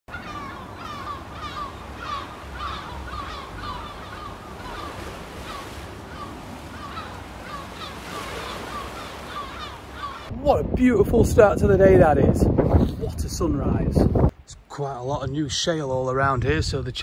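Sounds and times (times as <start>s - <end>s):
flock of birds calling: 0.1s - 10.3s.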